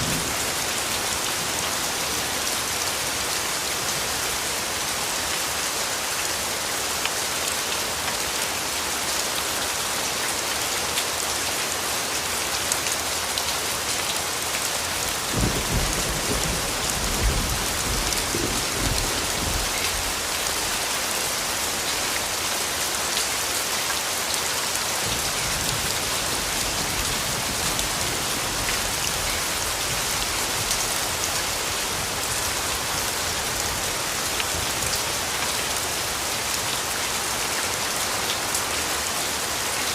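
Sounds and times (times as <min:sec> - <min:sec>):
steady rainfall pattering: 0:00.0 - 0:39.9
low rumble of thunder: 0:15.3 - 0:20.2.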